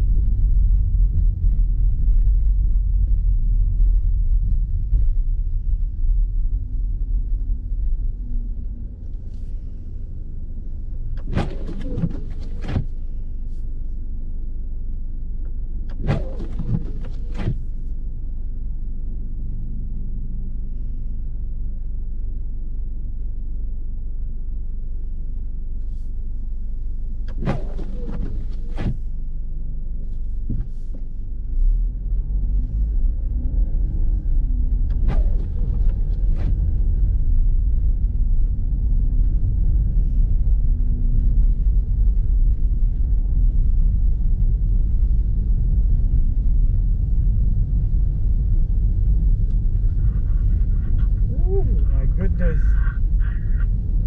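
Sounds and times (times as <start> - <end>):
car driving on snowy road: 0.0 - 54.0
brief louder swishes: 15.9 - 17.6.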